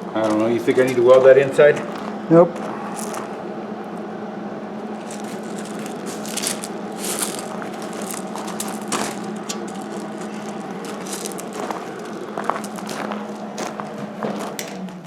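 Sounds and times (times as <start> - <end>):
steady hum: 0.0 - 15.0
metal parts clinking and scraping: 5.0 - 13.8.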